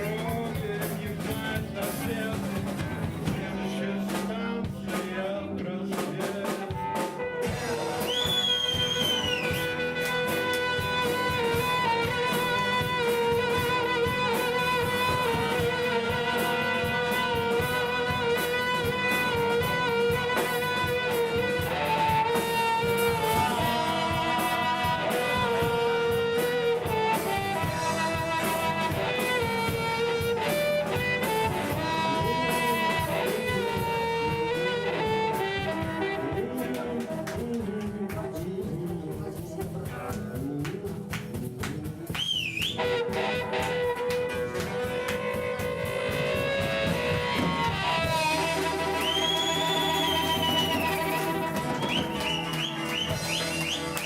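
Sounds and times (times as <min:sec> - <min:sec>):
live band playing instrumental: 0:00.0 - 0:54.0.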